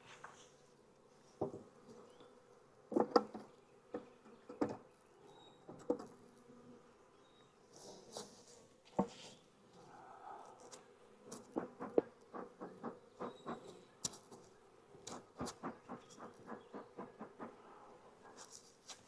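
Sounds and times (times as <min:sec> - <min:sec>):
sharp knocks and clicks: 0:11.6 - 0:14.3, 0:15.1 - 0:17.6.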